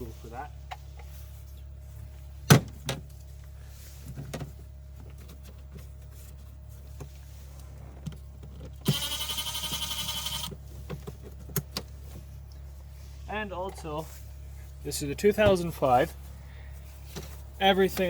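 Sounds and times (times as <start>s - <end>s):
small electric motor whirring: 8.8s - 10.6s.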